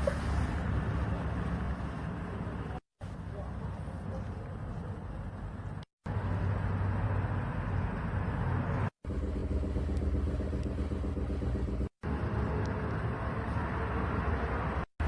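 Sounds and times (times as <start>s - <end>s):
car engine humming: 3.7s - 14.9s.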